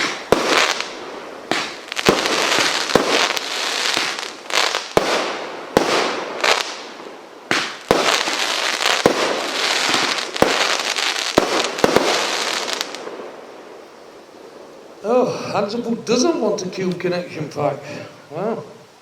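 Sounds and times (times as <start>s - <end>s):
firework bangs: 0.0s - 13.4s
firework crackling hiss: 0.0s - 15.9s.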